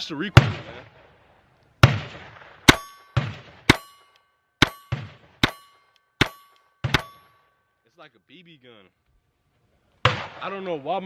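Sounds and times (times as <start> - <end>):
pistol shots cracking: 1.8 - 7.3, 10.0 - 10.5
lingering metallic ring: 2.7 - 7.8.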